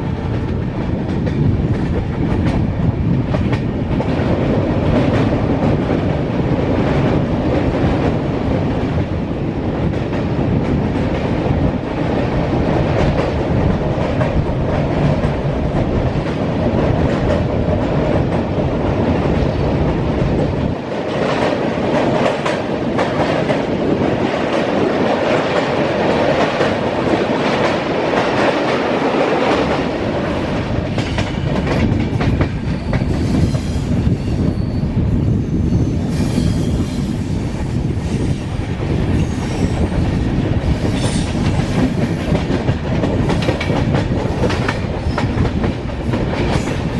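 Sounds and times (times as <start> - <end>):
train running rumble: 0.0 - 46.9
train wheels clattering: 9.8 - 46.9.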